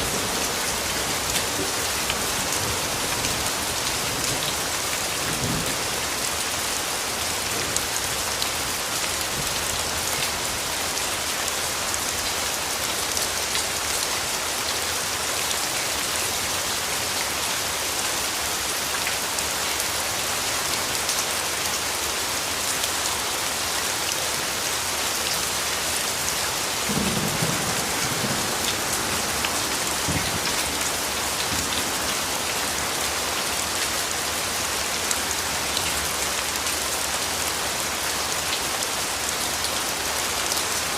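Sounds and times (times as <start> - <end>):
steady rain: 0.0 - 40.9
distant thunder rumble: 26.9 - 31.9.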